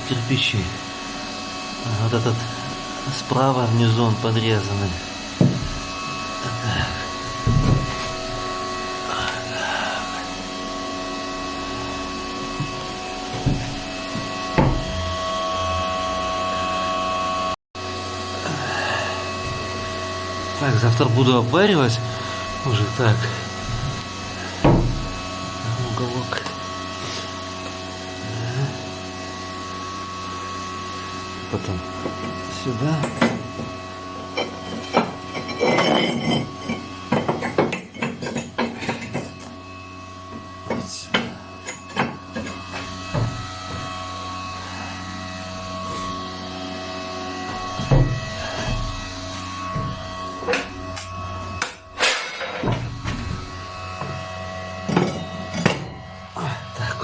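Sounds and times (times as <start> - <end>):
bricks knocking and clinking: 5.4 - 6.0, 7.3 - 8.4, 12.6 - 15.2, 33.0 - 39.5, 47.5 - 54.2
bricks knocking in metal frame: 33.0 - 39.5.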